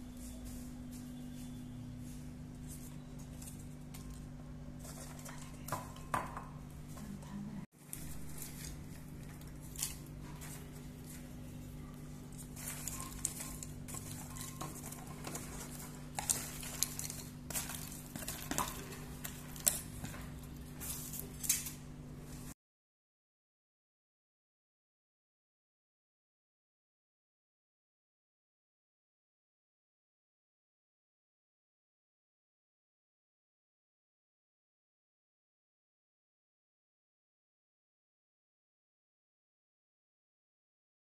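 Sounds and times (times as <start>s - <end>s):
popcorn rustling while poured: 7.8s - 21.7s.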